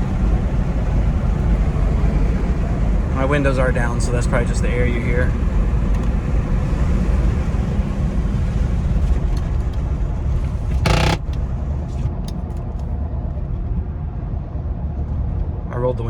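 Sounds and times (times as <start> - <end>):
wind and road noise in car: 0.0 - 16.0
power window closing: 10.9 - 11.3.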